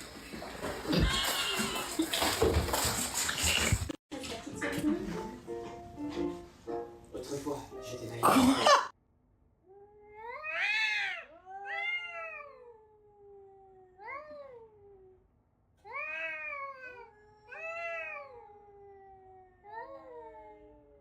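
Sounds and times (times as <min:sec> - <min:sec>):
cat meowing: 0:00.9 - 0:02.0, 0:09.7 - 0:15.2, 0:15.8 - 0:20.7.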